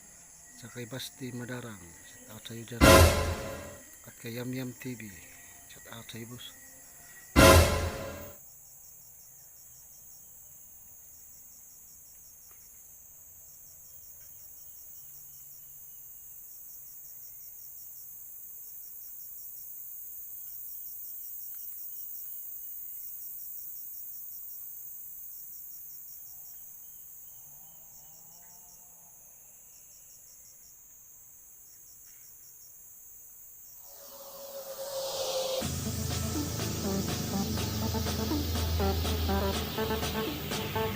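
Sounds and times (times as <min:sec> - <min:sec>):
insects chirping: 0:00.0 - 0:02.9, 0:03.7 - 0:07.3, 0:08.4 - 0:40.9
faint hiss: 0:33.8 - 0:40.9.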